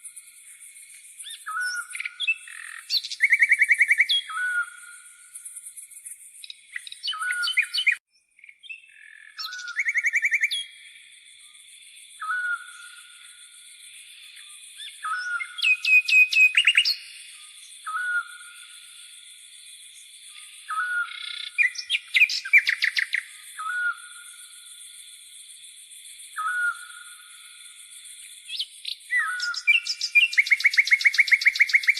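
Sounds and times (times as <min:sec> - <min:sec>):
rapid bird chirps and trills: 0:00.0 - 0:31.9
birds calling: 0:06.4 - 0:10.6, 0:20.4 - 0:24.1, 0:26.4 - 0:27.3, 0:28.5 - 0:31.9
insects buzzing: 0:17.6 - 0:31.9.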